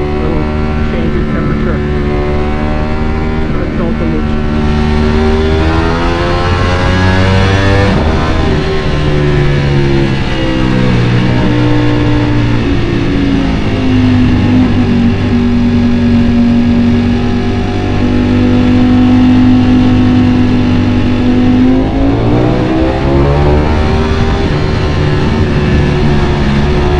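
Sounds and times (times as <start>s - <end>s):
motorcycle engine at speed: 0.0s - 26.9s.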